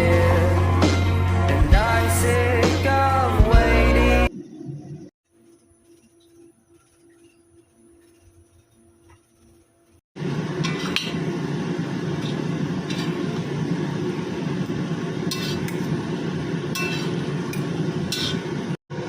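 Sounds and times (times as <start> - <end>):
noodles sizzling in a wok: 10.2 - 18.8
metal spatula scraping a pan: 10.6 - 11.3, 12.2 - 13.4, 15.2 - 16.0, 16.7 - 18.6.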